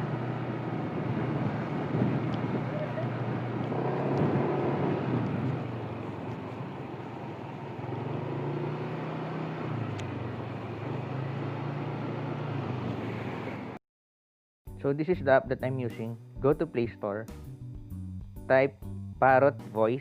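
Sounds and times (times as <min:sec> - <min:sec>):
motor scooter engine running: 0:00.0 - 0:11.4.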